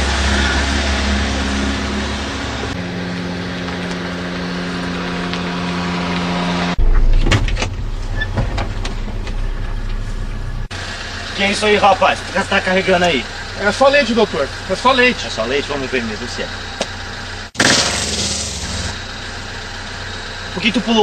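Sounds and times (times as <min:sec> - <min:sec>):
car engine running: 0:00.0 - 0:21.0
low rumble with knocks: 0:05.3 - 0:10.7.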